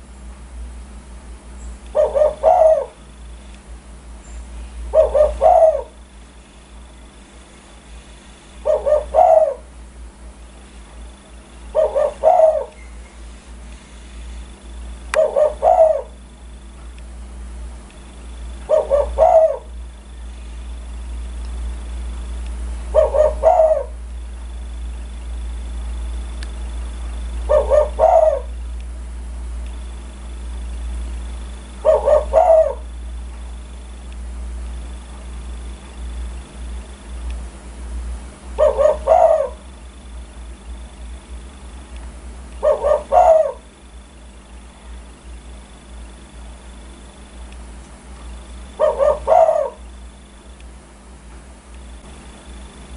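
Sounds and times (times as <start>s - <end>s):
steady low hum: 0.0s - 52.9s
dove cooing: 1.9s - 3.3s, 4.7s - 6.2s, 7.8s - 9.9s, 11.0s - 13.4s, 14.0s - 16.7s, 18.2s - 21.2s, 22.8s - 28.8s, 29.8s - 34.0s, 38.5s - 41.4s, 42.5s - 47.3s, 48.3s - 50.3s.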